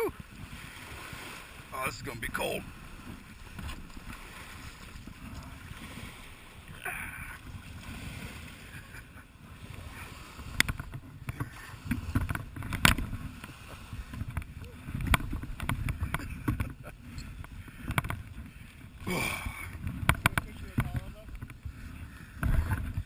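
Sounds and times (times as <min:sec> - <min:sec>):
water sloshing around kayak: 0:00.0 - 0:23.0
wind rumble on microphone: 0:00.0 - 0:23.0
sharp splashes and knocks: 0:03.0 - 0:06.8, 0:10.4 - 0:16.8, 0:19.6 - 0:21.6.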